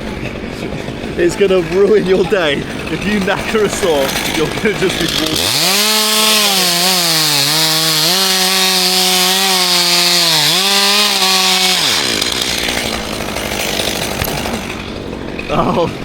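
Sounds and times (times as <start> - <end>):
chainsaw cutting wood: 2.8 - 15.5.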